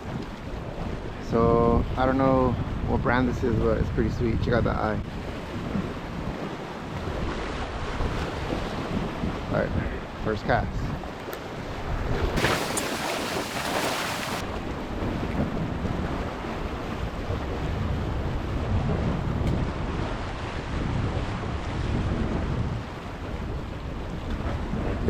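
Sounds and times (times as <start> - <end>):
wind buffeting microphone: 0.0 - 25.0
surf on rocks: 12.4 - 14.6.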